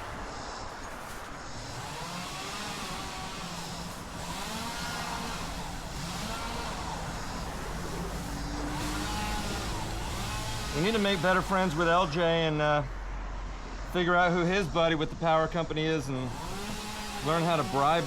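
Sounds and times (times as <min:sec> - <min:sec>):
engine running: 0:00.0 - 0:13.1, 0:16.0 - 0:18.0
steady low hum: 0:00.0 - 0:13.2.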